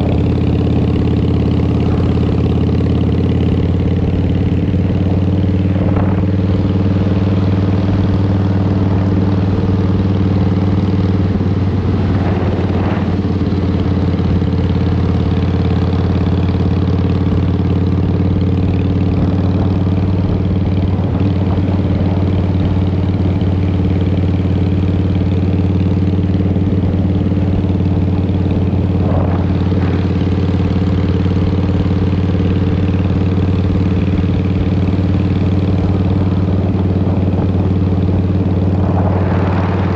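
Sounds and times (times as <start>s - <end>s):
motorcycle engine running: 0.0s - 39.9s
rushes of noise: 10.9s - 14.7s, 36.0s - 39.9s.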